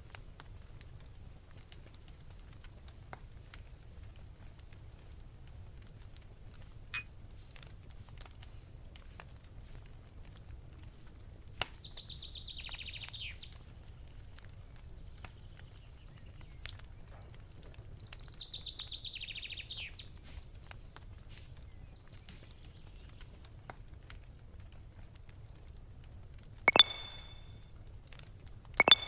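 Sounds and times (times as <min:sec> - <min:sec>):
campfire crackling: 0:00.0 - 0:11.8
songbird trilling: 0:26.7 - 0:27.4, 0:28.8 - 0:29.0.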